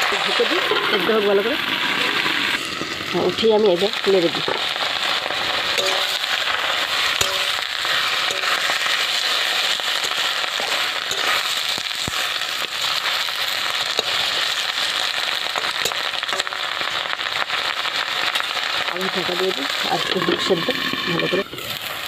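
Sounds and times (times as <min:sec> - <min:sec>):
leaves sizzling and popping in oil: 0:00.0 - 0:22.0
metal spatula stirring: 0:05.5 - 0:16.9.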